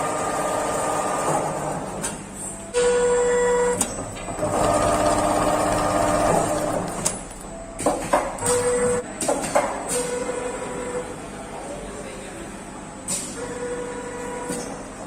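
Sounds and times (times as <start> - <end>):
sewing machine stitching: 4.4 - 7.5
machine clicks: 4.5 - 7.6.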